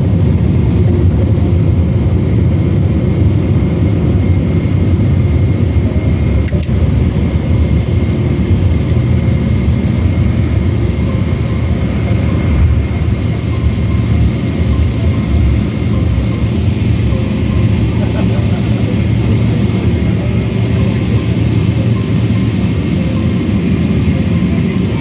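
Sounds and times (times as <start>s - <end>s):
faint steady whine: 0.0s - 25.0s
low rumble of aircraft engines: 0.0s - 25.0s
light clinks: 6.4s - 6.8s.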